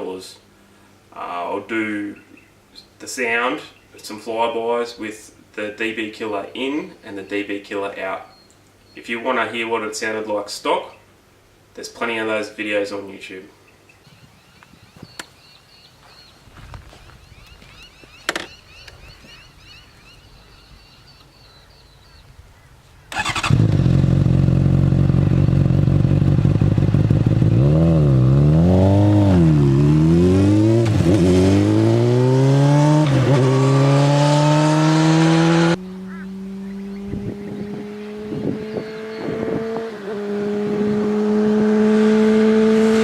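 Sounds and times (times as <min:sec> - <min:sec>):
motorcycle engine revving: 0:23.1 - 0:43.0.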